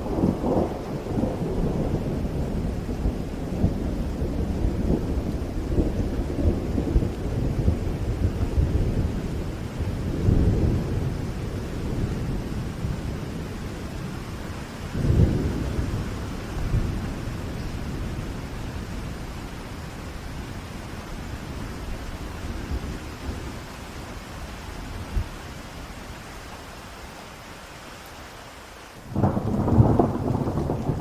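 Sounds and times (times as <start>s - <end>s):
rolling thunder: 0.0s - 19.2s, 29.0s - 31.0s
rain hiss: 0.0s - 31.0s.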